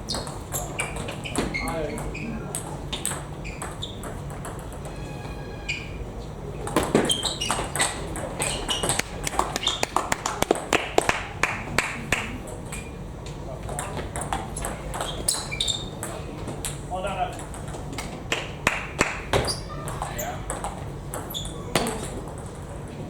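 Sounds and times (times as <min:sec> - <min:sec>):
table tennis ball clicking: 0:06.7 - 0:12.9.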